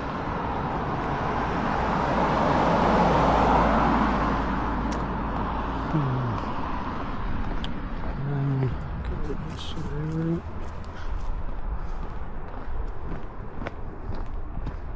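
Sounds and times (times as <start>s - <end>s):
car driving past: 0.6s - 9.7s.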